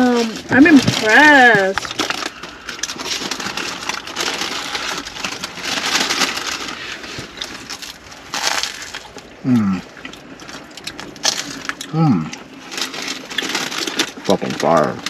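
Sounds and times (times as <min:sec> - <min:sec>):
crusty bread crunching when chewed: 0:00.1 - 0:15.0
person humming mmm: 0:09.4 - 0:09.9, 0:11.9 - 0:12.4.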